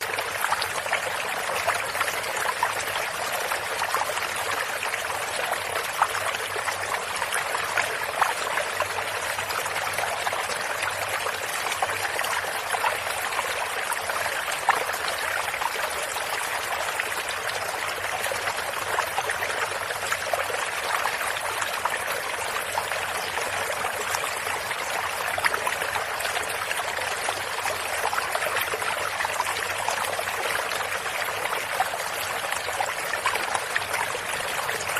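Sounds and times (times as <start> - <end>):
stream burbling and trickling: 0.0 - 34.9.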